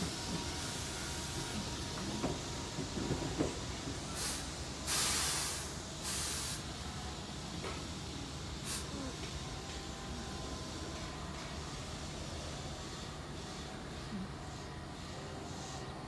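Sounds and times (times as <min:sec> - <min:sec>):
compressed air hisses: 0:00.0 - 0:09.3.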